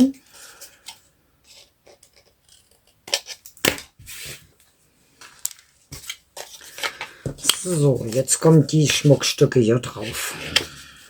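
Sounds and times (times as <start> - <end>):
paper rustling: 5.3 - 11.0.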